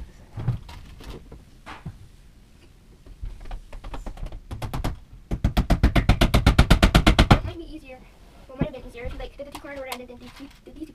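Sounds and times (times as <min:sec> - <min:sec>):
hammer driving nails into wood: 0:03.8 - 0:07.5.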